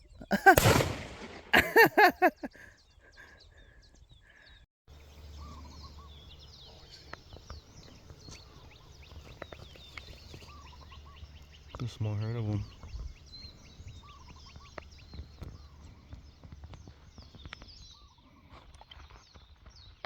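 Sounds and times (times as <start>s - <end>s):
small birds chirping: 0.0s - 20.0s
sharp loud burst: 0.4s - 1.7s.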